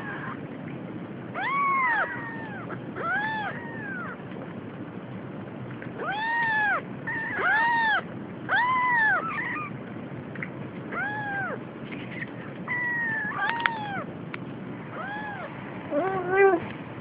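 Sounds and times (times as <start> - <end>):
cat meowing: 0.0 - 0.4, 1.4 - 4.2, 6.0 - 9.7, 10.9 - 11.6, 12.7 - 14.1, 14.9 - 16.6
cat chirps: 1.4 - 4.2, 6.0 - 9.8, 10.9 - 11.6, 12.7 - 14.1, 14.9 - 16.6.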